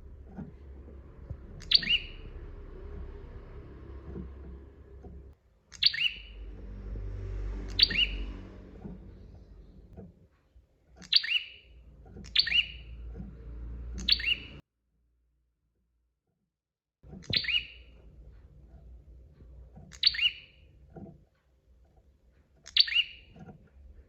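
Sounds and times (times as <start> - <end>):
low rumble: 0.0 - 5.4, 6.1 - 10.0, 11.8 - 14.6
bird sharp chirping calls: 1.3 - 3.1, 5.7 - 6.6, 7.4 - 9.9, 11.0 - 13.2, 13.9 - 14.6, 17.2 - 17.9, 19.9 - 20.6, 22.6 - 23.4.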